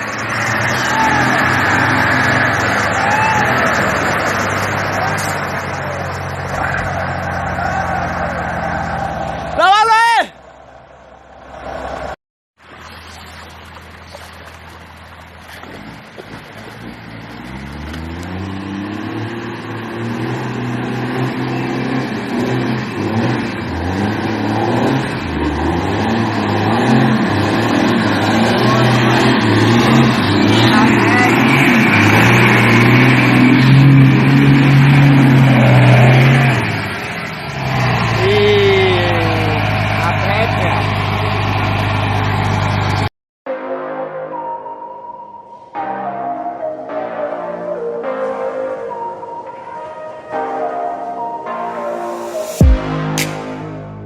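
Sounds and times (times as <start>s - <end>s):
truck engine revving: 0.0s - 9.6s, 10.4s - 43.1s.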